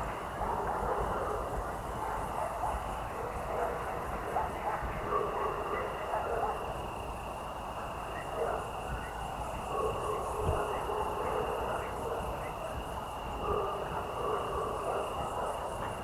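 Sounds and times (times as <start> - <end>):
crickets chirring: 3.6 - 16.0.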